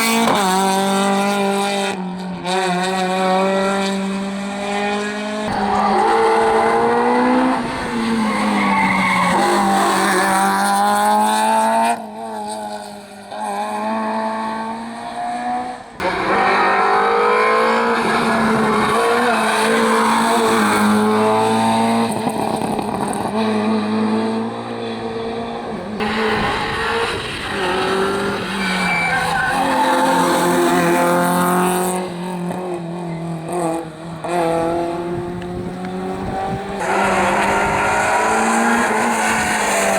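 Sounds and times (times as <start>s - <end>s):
rally car engines revving: 0.0s - 39.9s
tyres squealing: 5.5s - 10.0s, 26.0s - 31.0s.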